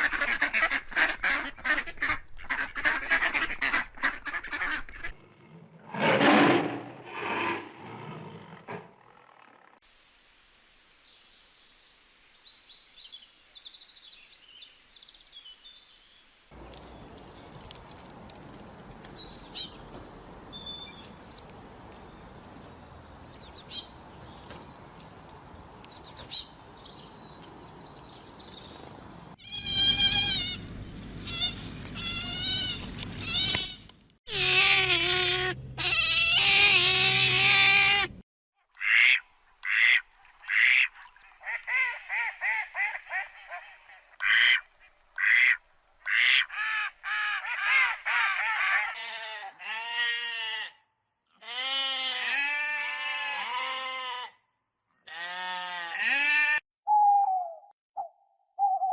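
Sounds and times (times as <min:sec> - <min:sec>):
outdoor background noise: 0:00.0 - 0:58.9
high bird chirps: 0:19.1 - 0:21.4, 0:23.2 - 0:24.7, 0:25.9 - 0:33.9
long wavering animal calls: 0:34.3 - 0:38.1.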